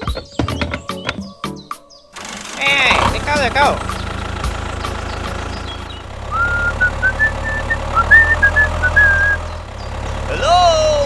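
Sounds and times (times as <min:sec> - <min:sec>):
toy tractor engine hum: 0:02.1 - 0:11.0
high whistle-like tune: 0:06.3 - 0:09.6.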